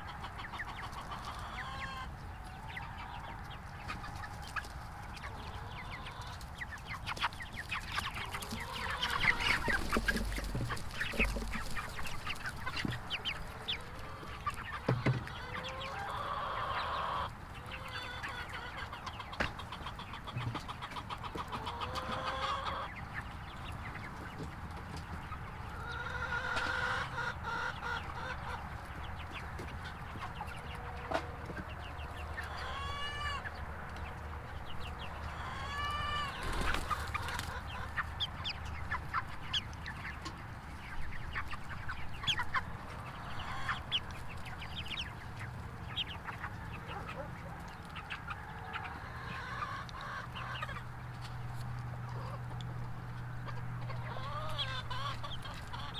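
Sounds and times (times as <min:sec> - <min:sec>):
chicken rising and falling calls: 0:00.0 - 0:04.6, 0:05.2 - 0:23.0, 0:25.7 - 0:28.7, 0:30.2 - 0:33.6, 0:34.9 - 0:39.2, 0:53.4 - 0:55.9
chickens clucking: 0:00.0 - 0:55.9.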